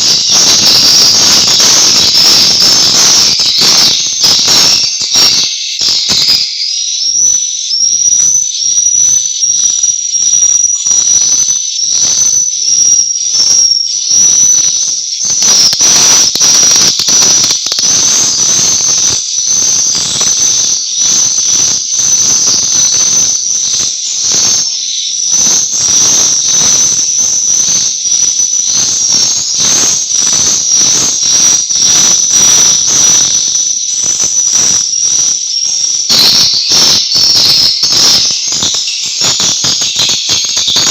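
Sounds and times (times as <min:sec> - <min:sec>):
swiftlet twittering: 0:00.0 - 0:40.9
sharp clicks: 0:15.3 - 0:18.2.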